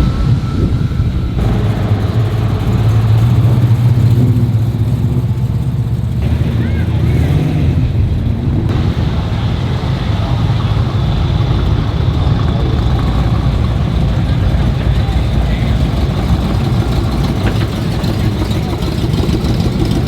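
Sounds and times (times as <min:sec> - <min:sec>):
car engine rumbling: 0:00.0 - 0:20.0
murmur of voices: 0:06.2 - 0:20.0.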